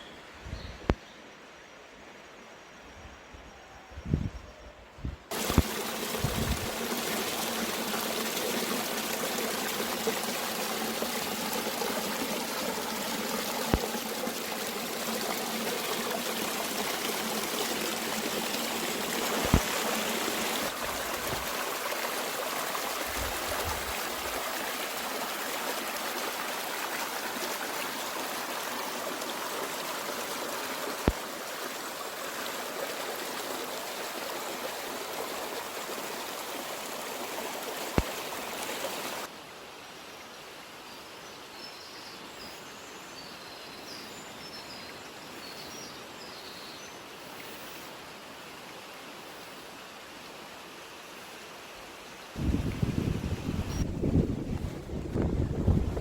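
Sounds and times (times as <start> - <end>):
stream water rushing: 5.3 - 39.7.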